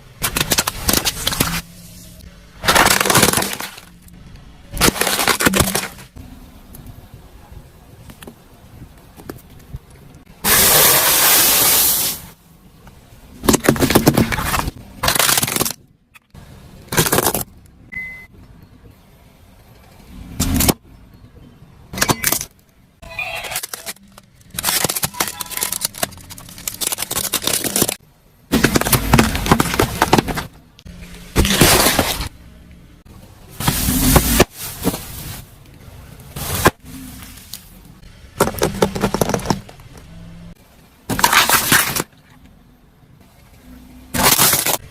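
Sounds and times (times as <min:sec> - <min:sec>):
objects crunching under a car: 0:00.2 - 0:06.2, 0:13.3 - 0:15.9, 0:16.8 - 0:17.5, 0:23.2 - 0:42.6, 0:43.3 - 0:44.9.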